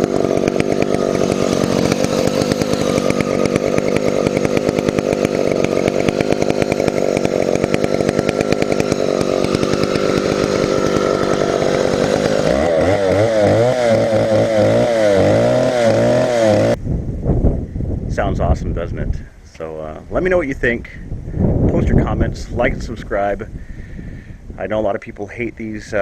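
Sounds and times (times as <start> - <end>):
chainsaw engine running: 0.0 - 16.8.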